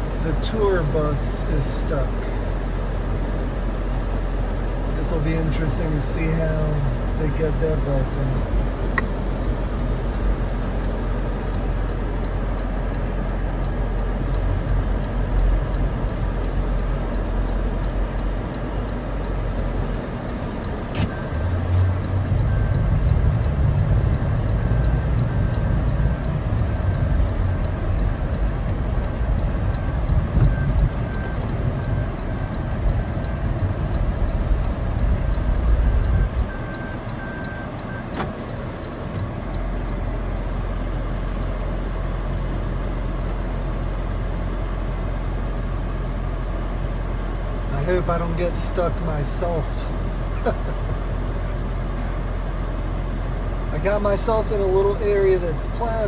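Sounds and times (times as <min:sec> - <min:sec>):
vehicle engine rumble: 0:00.0 - 0:56.0
wind rumble: 0:08.4 - 0:37.2
electronic beeping: 0:21.0 - 0:38.1.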